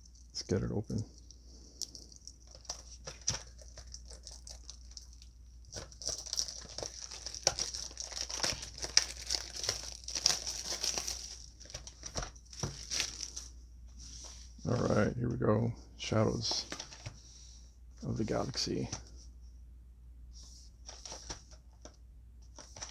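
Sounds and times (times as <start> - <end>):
plastic shrink wrap crinkling: 0.0 - 13.6.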